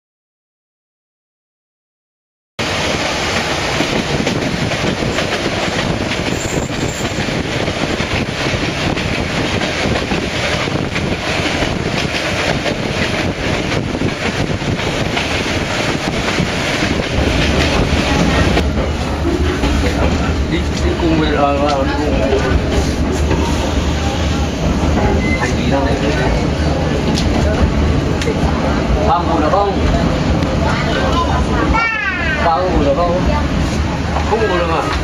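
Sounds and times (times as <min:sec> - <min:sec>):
train wheels rumbling and rattling: 0:02.6 - 0:35.0.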